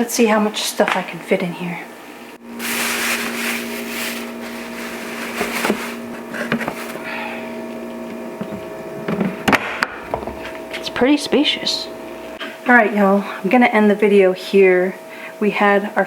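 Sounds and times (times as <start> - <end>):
fridge electric hum: 0.0 - 16.0
rustling: 2.5 - 7.3.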